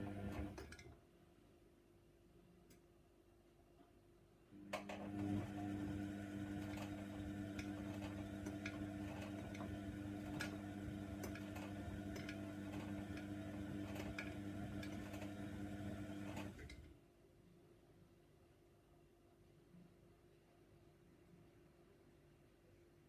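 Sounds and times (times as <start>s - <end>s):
washing machine motor hum: 0.0s - 0.9s, 4.6s - 16.9s.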